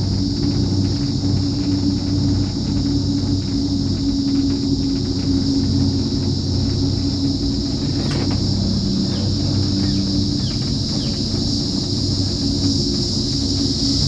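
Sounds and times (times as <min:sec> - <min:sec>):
cable car gondola rumble: 0:00.0 - 0:14.0
high-pitched drone: 0:05.6 - 0:14.0.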